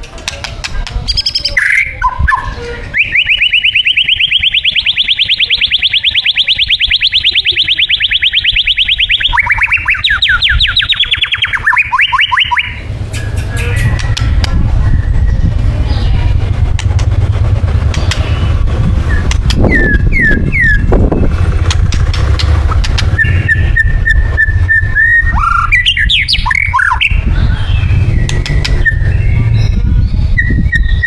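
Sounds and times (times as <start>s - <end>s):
bird singing: 1.0s - 31.0s
low rumble: 12.8s - 31.0s.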